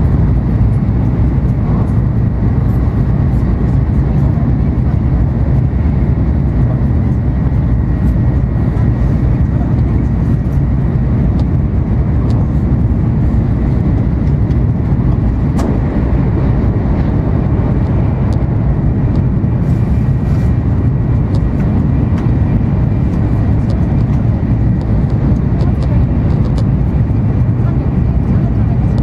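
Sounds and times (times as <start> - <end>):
train rumble inside cabin: 0.0 - 29.0
passing train thud: 15.5 - 18.2.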